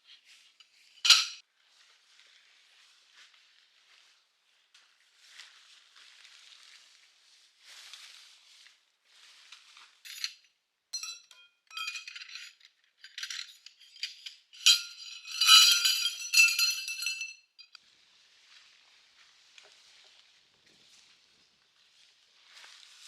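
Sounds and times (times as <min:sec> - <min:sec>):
hard objects clinking and rattling: 0:11.0 - 0:17.8.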